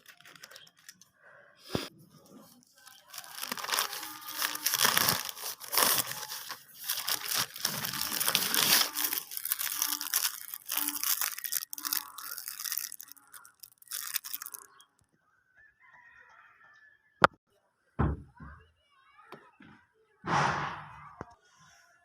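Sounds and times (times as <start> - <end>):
packaging tearing: 0.0 - 1.0, 2.8 - 14.7
packaging crinkling and crackling: 0.0 - 1.1, 1.7 - 14.8.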